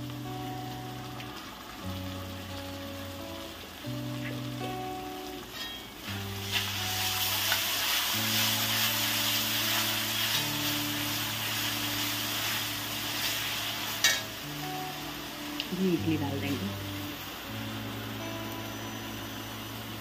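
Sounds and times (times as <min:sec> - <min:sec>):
soft background music: 0:00.0 - 0:20.0
vegetables sizzling in iron pan: 0:00.0 - 0:20.0
spatula scraping pan: 0:06.4 - 0:14.3.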